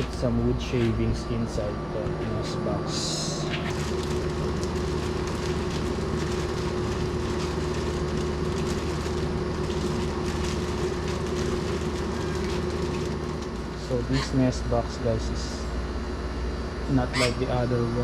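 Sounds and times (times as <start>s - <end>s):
steady mechanical hum: 0.0s - 18.0s
wood shavings rustling: 3.5s - 14.5s.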